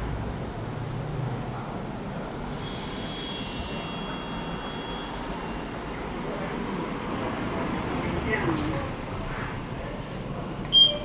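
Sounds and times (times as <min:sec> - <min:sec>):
train rumbling on rails: 0:00.0 - 0:10.6
high-pitched squeal: 0:02.0 - 0:06.1.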